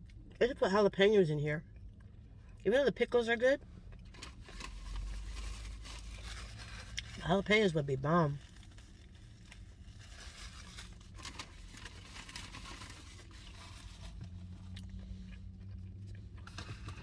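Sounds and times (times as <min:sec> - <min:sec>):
low steady hum: 0:00.0 - 0:17.0
crinkling wrapper: 0:03.9 - 0:17.0
chewing food: 0:14.2 - 0:17.0.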